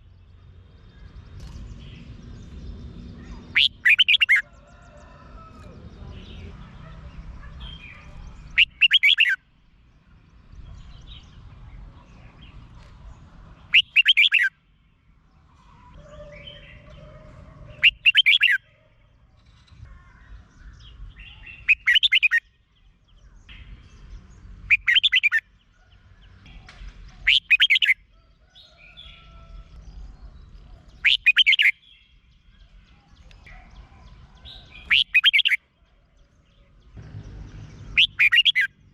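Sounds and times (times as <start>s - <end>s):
bird singing whistled phrases: 3.5s - 4.4s, 8.6s - 9.4s, 13.7s - 14.5s.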